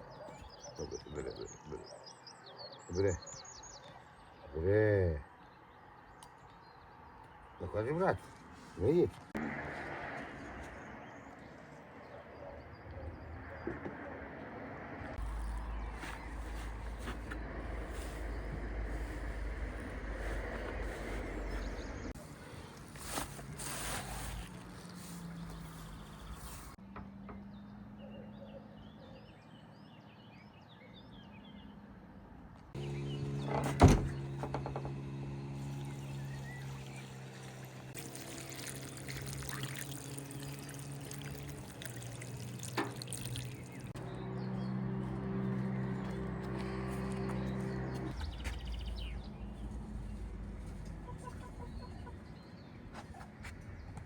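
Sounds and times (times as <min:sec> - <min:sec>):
rural background noise: 0:00.0 - 0:54.0
deep low rumble: 0:15.2 - 0:22.2.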